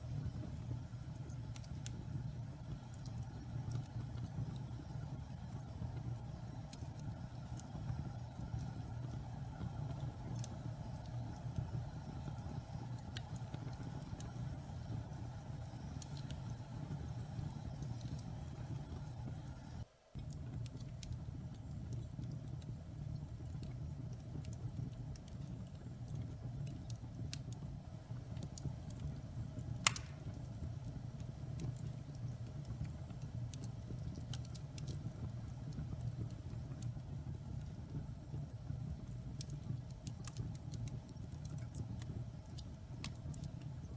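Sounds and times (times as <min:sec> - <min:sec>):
wood fire burning: 0:00.0 - 0:43.9
sharp fire pop: 0:29.8 - 0:30.4.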